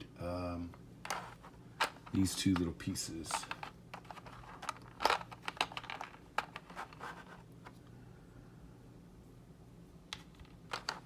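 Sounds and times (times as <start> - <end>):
light clicks of plastic parts: 1.8 - 6.7.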